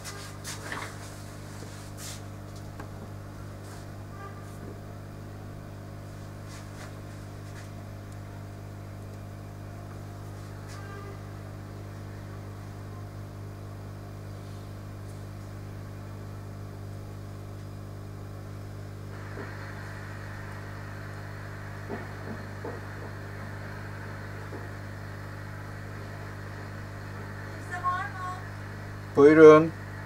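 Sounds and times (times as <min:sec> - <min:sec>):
electrical mains hum: 0:00.0 - 0:30.0
steady hiss: 0:19.1 - 0:24.7.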